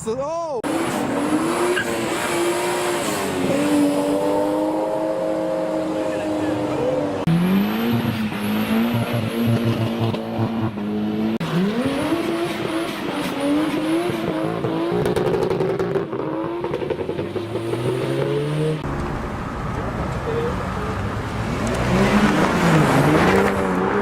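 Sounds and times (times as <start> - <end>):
car engines revving: 0.6 - 24.0.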